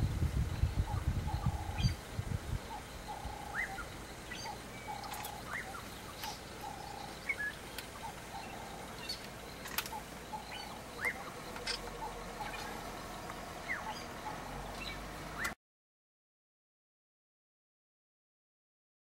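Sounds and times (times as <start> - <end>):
higher bird chirps: 2.6 - 15.6.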